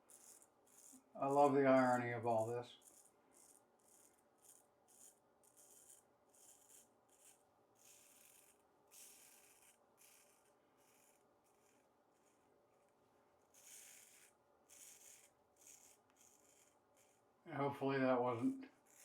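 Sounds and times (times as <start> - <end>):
razor scraping stubble: 0.0 - 17.3, 18.7 - 19.0.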